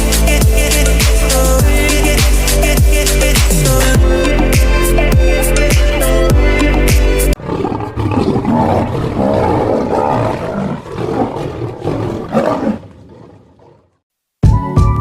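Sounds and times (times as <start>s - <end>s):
music: 0.0s - 7.4s, 14.4s - 15.0s
large animal roaring: 7.3s - 14.0s.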